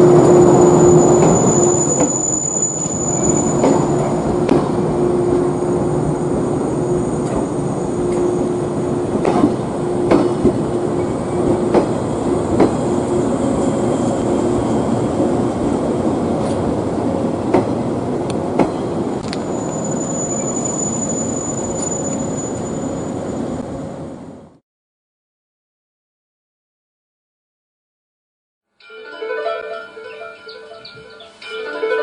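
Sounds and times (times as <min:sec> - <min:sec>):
rail joint clicks: 0:00.0 - 0:05.4, 0:07.2 - 0:23.7
train running on rails: 0:00.0 - 0:24.6, 0:28.9 - 0:32.0.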